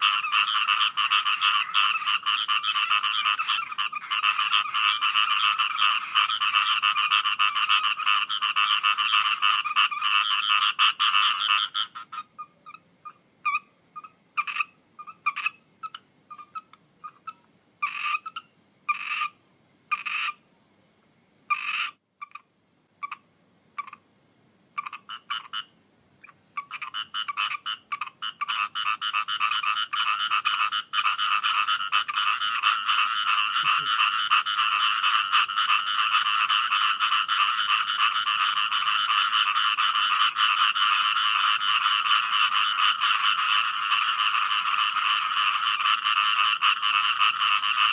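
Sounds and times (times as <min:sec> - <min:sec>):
frogs croaking: 0:00.0 - 0:47.9.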